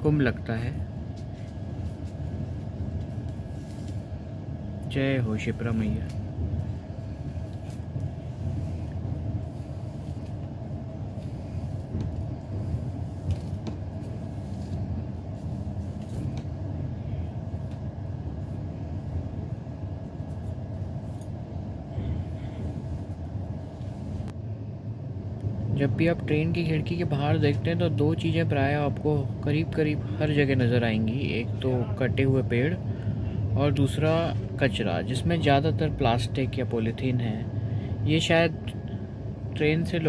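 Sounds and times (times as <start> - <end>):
train wheels rumbling on rails: 0.0 - 24.3.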